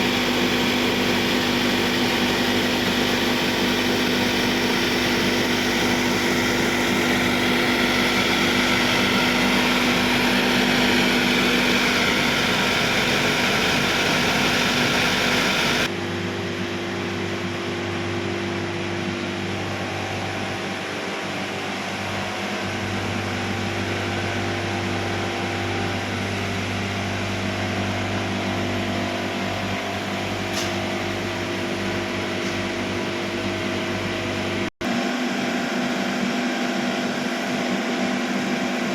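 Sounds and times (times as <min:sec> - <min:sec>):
kiln burners hissing: 0:00.0 - 0:15.9.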